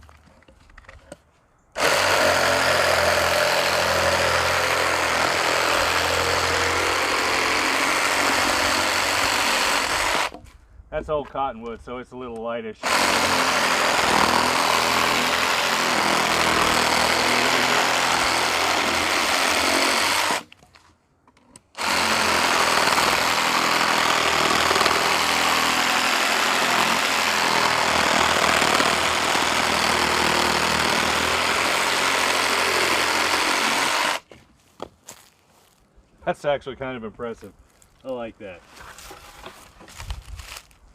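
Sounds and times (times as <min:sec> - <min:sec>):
reciprocating saw cutting log: 0:01.8 - 0:10.4, 0:12.8 - 0:20.5, 0:21.8 - 0:34.3.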